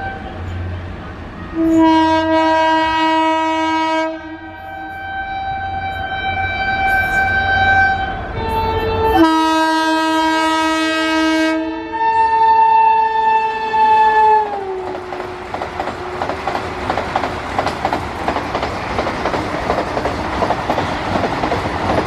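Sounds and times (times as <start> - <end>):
train rumble: 0.0 - 10.8, 13.2 - 22.0
train multi-tone horn: 0.0 - 17.2.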